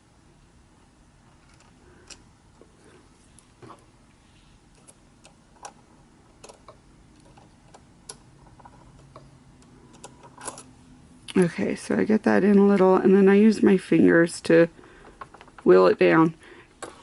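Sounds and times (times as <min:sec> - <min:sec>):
sewing machine parts clicking: 0:06.4 - 0:10.7.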